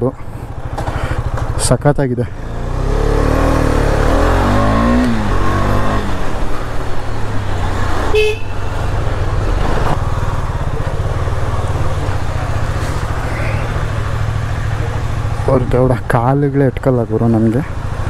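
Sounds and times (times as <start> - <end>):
motorcycle engine at low revs: 0.0 - 18.0
short horn beep: 8.2 - 8.7.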